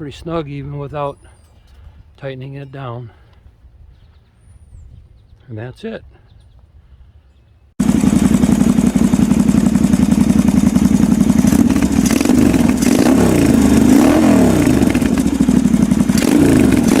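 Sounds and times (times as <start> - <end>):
motorcycle engine revving: 7.8 - 17.0.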